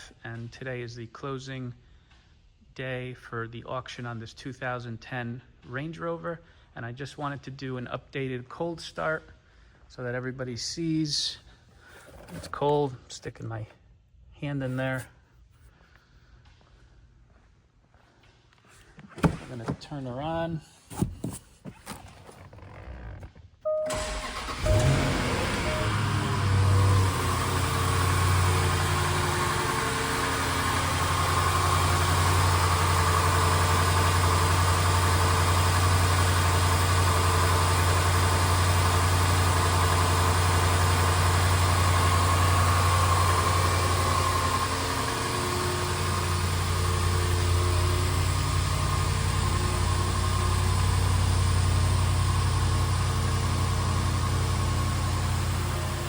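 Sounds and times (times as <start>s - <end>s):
car engine starting and idling: 21.8s - 56.0s.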